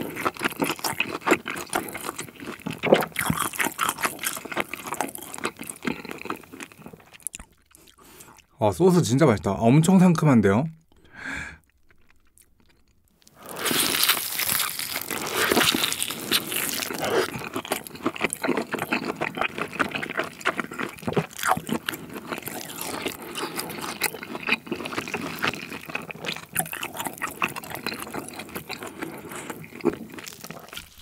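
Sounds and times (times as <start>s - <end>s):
wet juicy chewing: 0.0s - 8.5s, 11.6s - 31.0s.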